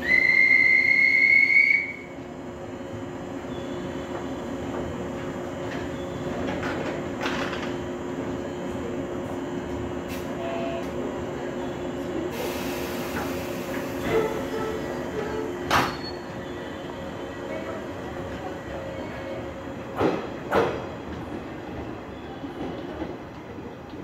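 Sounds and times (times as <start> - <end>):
electric train rumble: 0.0 - 24.0
rail clicks: 4.0 - 8.4, 19.8 - 24.0.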